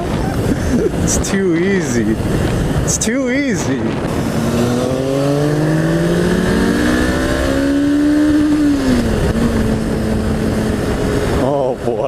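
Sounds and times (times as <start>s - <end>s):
wind noise rushing: 0.0s - 11.8s
motorcycle engine accelerating: 3.6s - 12.0s.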